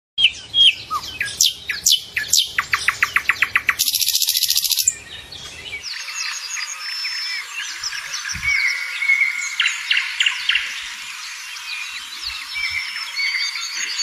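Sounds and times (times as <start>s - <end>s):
buzzy bird trill: 0.2s - 10.6s
high thin chirping: 3.7s - 4.9s.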